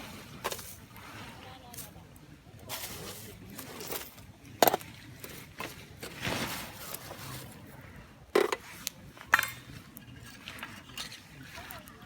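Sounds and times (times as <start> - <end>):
soft rush of flame: 6.0 - 8.1.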